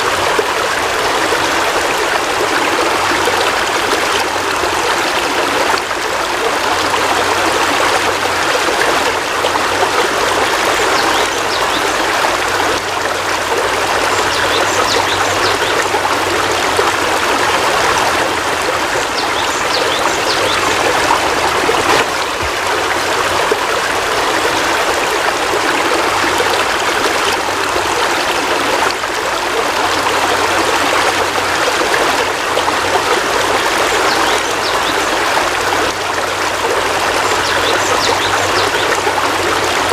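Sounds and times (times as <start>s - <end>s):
heavy rain falling: 15.1s - 33.1s.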